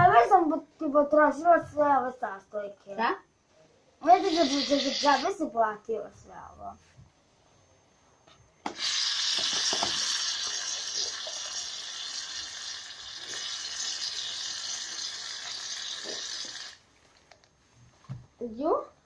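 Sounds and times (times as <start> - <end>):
aerosol can spraying: 8.7 - 12.6, 13.2 - 16.8.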